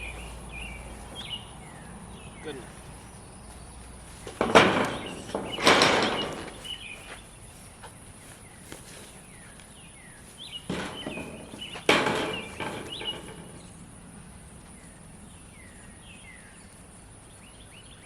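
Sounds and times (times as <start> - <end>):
rustling and scuffing: 0.0 - 12.6
birds chirping: 0.0 - 18.0.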